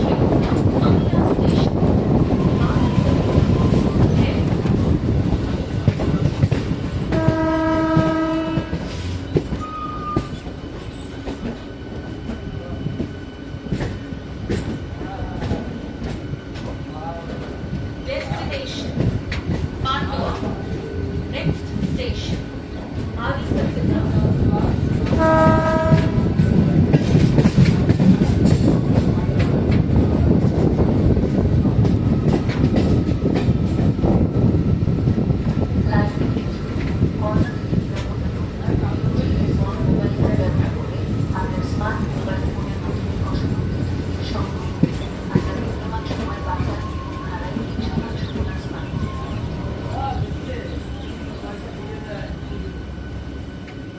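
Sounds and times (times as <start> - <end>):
train rumble and wheel clatter: 0.0 - 53.9
train horn: 7.1 - 8.9, 25.1 - 26.3.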